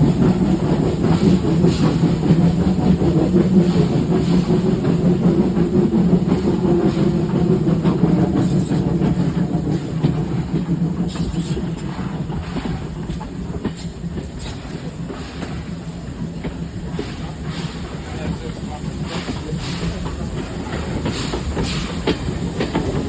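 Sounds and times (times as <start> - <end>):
train rumble: 0.0 - 23.0.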